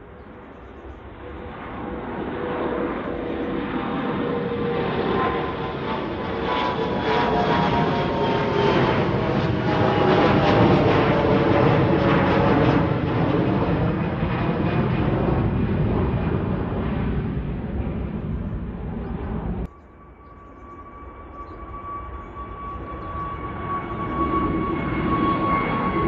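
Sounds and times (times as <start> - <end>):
airliner jet engines whining: 0.0 - 26.0.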